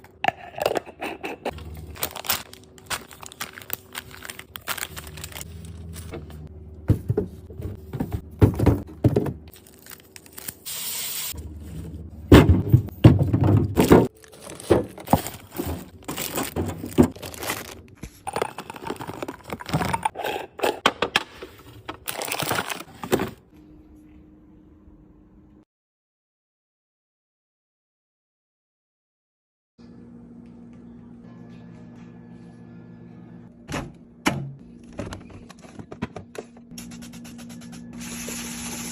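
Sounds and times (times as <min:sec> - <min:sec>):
faint refrigerator hum: 0:00.0 - 0:10.6, 0:11.4 - 0:25.6, 0:29.8 - 0:38.8
plastic crinkling and scraping: 0:01.5 - 0:06.4, 0:13.8 - 0:20.4, 0:21.5 - 0:23.4.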